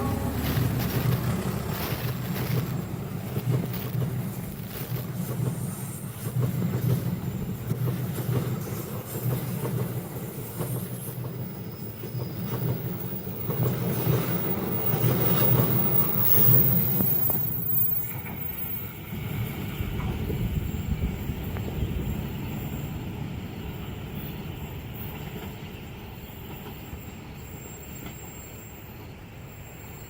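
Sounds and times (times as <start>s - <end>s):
train wheels clattering on rails: 0.0s - 30.0s.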